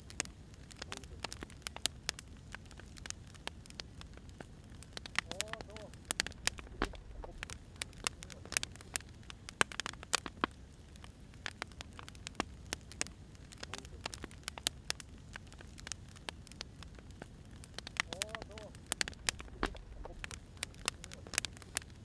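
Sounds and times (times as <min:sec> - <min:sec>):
wood fire crackling: 0:00.0 - 0:22.0
low steady rumble: 0:06.1 - 0:08.7, 0:16.8 - 0:22.0.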